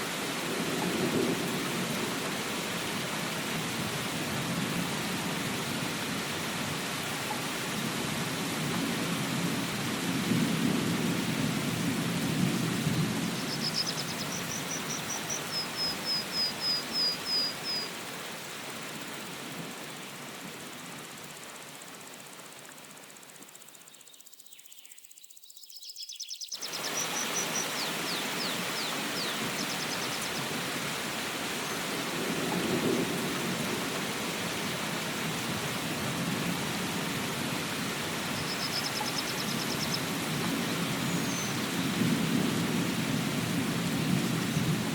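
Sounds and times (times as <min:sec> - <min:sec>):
rain hissing: 0:00.0 - 0:24.0, 0:26.6 - 0:44.9
small bird chirping: 0:13.3 - 0:17.9, 0:23.6 - 0:30.5, 0:38.3 - 0:40.1.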